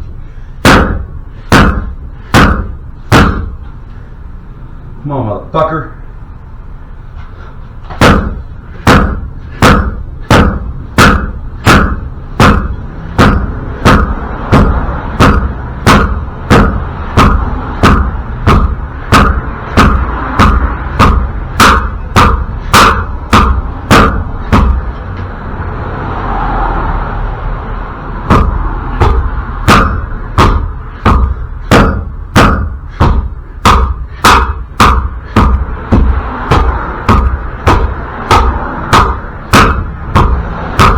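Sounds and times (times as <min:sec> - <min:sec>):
hammer blows on metal: 0:07.9 - 0:25.2, 0:28.2 - 0:40.9.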